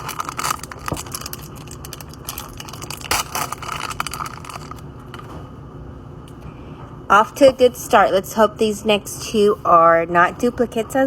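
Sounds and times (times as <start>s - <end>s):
plastic packaging crinkling: 0.0s - 5.3s.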